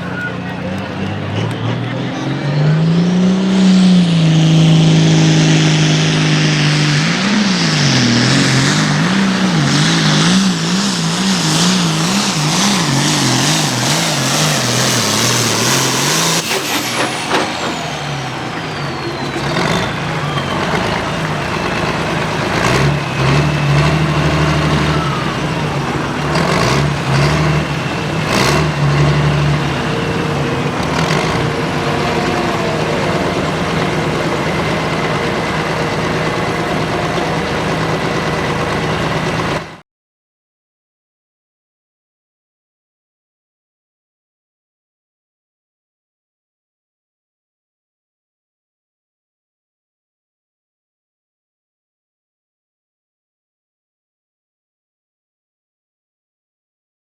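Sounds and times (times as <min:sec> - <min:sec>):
tractor diesel engine under load: 0:00.0 - 0:39.8
high whistle sliding down: 0:11.5 - 0:37.9.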